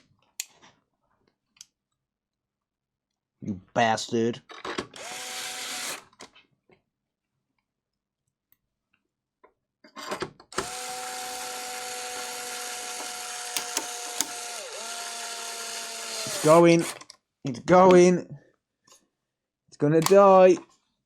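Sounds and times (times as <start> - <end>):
electric screwdriver whining: 4.8 - 6.1, 10.5 - 17.1
small clicks: 13.0 - 14.4.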